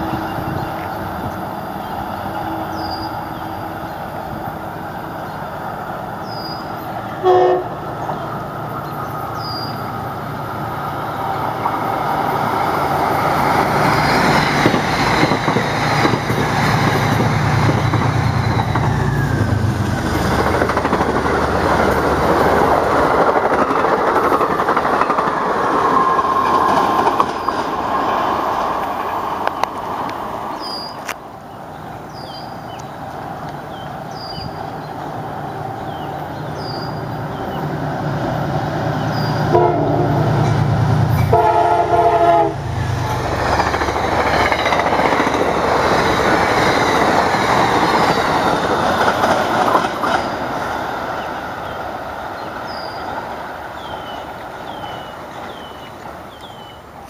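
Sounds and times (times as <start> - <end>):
train wheels rumbling on rail: 0.0 - 57.0
train horn blast: 7.2 - 7.8, 39.5 - 40.4, 41.1 - 42.7.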